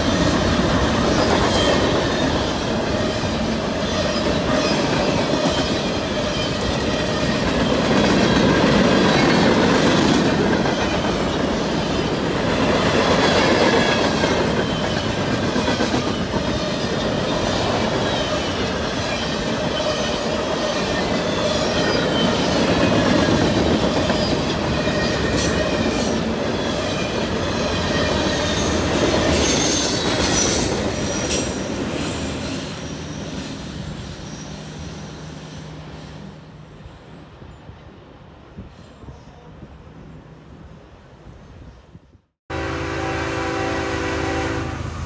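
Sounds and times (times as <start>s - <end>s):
steel wheels on rail: 0.0s - 37.2s
high wheel squeal: 16.1s - 36.4s.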